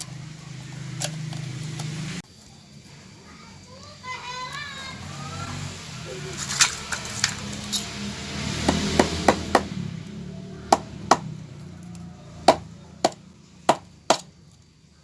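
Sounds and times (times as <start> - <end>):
hammer striking wood: 8.6 - 9.8, 10.7 - 11.3, 12.5 - 14.3.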